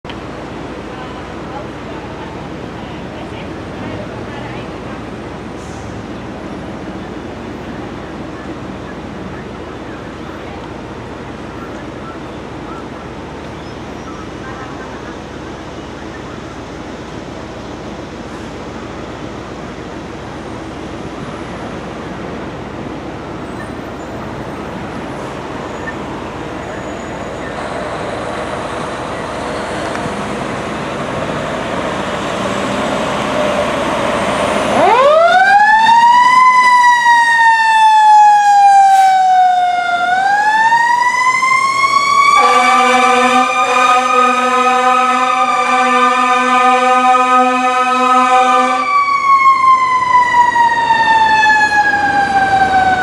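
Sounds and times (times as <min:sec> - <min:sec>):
road noise: 0:00.0 - 0:53.0
fire truck siren wailing: 0:23.4 - 0:53.0
truck air horns: 0:41.8 - 0:49.0.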